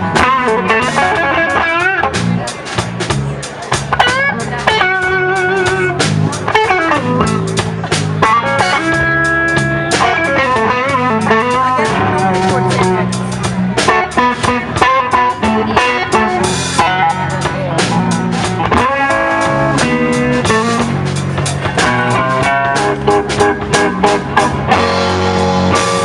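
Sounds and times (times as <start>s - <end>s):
lead electric guitar bending notes: 0.0s - 26.0s
slow blues band: 0.0s - 26.0s.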